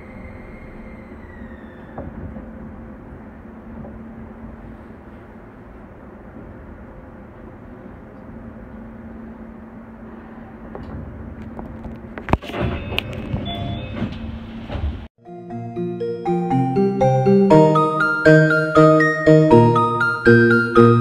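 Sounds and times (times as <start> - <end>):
sliding doors clacking open: 0.0 - 5.2, 10.6 - 15.1
train interior hum: 0.0 - 15.1.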